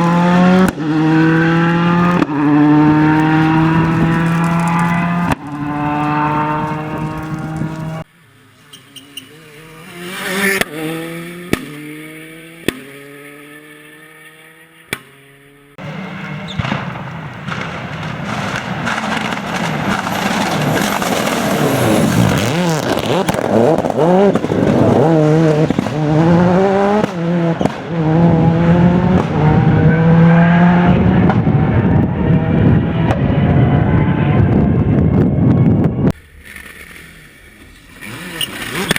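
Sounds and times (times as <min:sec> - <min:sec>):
rally car engine revving: 0:00.0 - 0:08.1, 0:08.8 - 0:15.0, 0:15.7 - 0:38.9
anti-lag bangs: 0:15.8 - 0:20.8.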